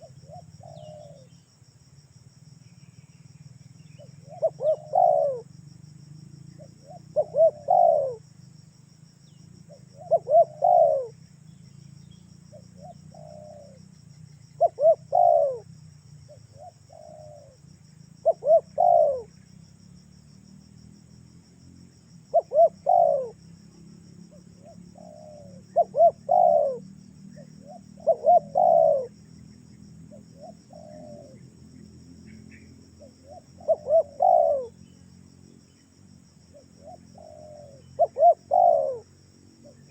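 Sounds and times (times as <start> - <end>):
dove cooing: 0.0 - 1.3, 4.0 - 5.5, 6.6 - 8.3, 9.7 - 11.2, 12.5 - 13.8, 14.6 - 15.7, 16.3 - 17.6, 18.2 - 19.4, 22.3 - 23.4, 24.3 - 26.8, 27.4 - 29.2, 30.1 - 31.4, 32.5 - 34.8, 36.5 - 39.9
insect trilling: 2.8 - 39.9.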